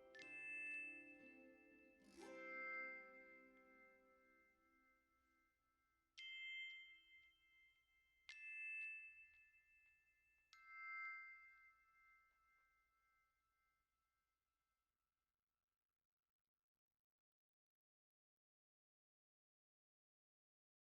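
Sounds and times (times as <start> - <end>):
bell-like chime notes: 0.0 - 5.0.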